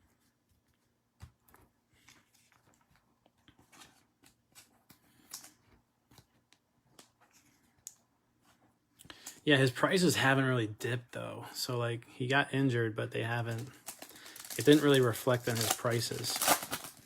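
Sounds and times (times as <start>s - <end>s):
cards rustling and clicking: 1.3s - 8.0s, 13.4s - 17.0s.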